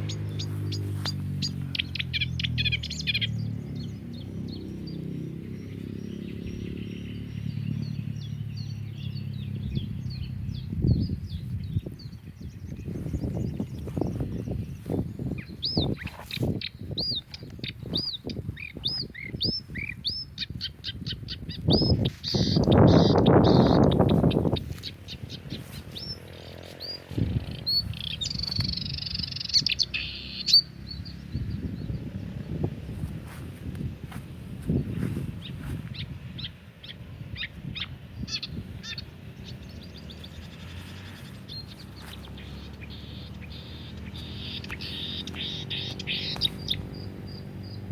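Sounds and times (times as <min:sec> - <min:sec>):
songbird singing: 0:00.0 - 0:47.9.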